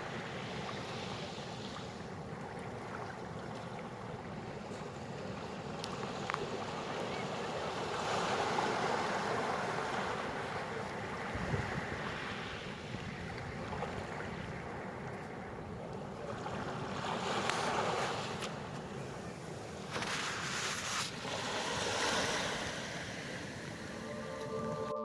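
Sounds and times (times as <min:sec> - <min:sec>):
wind on microphone: 0:04.4 - 0:24.9
surf washing over pebbles: 0:16.0 - 0:24.0.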